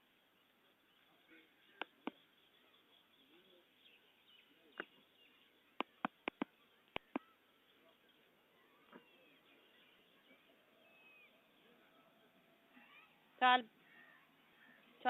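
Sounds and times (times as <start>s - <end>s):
faint bird chirping: 0.0s - 15.0s
sharp clicks: 1.8s - 2.2s, 5.8s - 7.3s.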